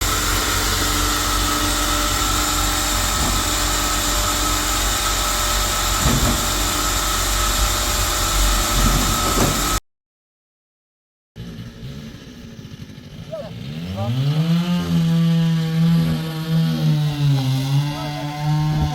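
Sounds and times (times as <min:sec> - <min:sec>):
loud machinery whining: 0:00.0 - 0:09.8, 0:11.4 - 0:18.9
machinery knocks: 0:05.9 - 0:06.7.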